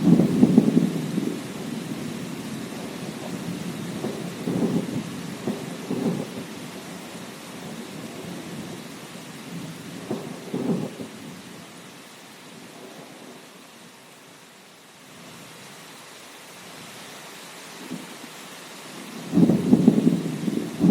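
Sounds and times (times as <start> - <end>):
thunder rumbling: 0.0 - 11.6, 18.9 - 20.9
rain hiss: 0.0 - 20.9.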